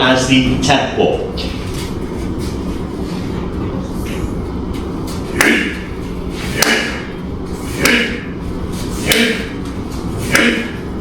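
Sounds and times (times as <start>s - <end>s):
palms slapping wooden post: 6.5s - 7.1s.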